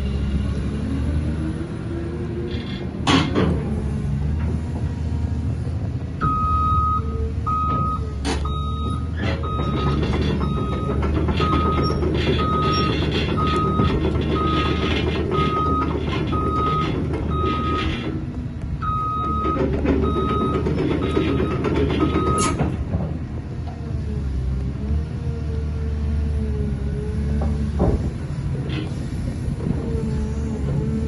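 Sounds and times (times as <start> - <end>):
diesel engine running: 0.0 - 31.0
travel alarm beeping: 6.2 - 14.8, 18.8 - 21.6.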